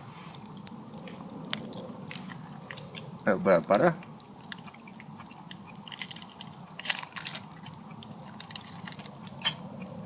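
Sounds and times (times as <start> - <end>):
cutlery clicks and scrapes: 8.8 - 9.6.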